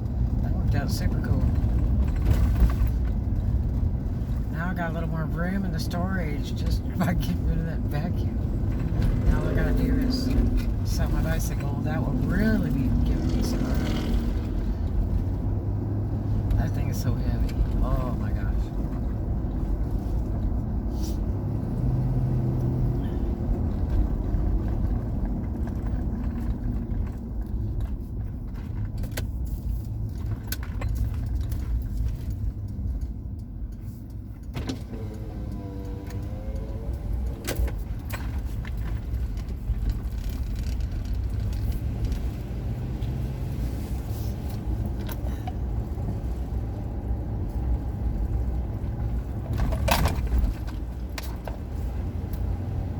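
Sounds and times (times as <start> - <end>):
road and engine rumble: 0.0 - 52.9
light clicks and rattles: 23.4 - 46.8.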